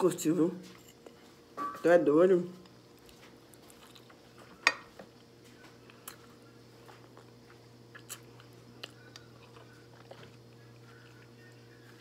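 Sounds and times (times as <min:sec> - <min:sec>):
low steady hum: 0:00.0 - 0:12.0
person chewing with wet smacks: 0:05.1 - 0:12.0.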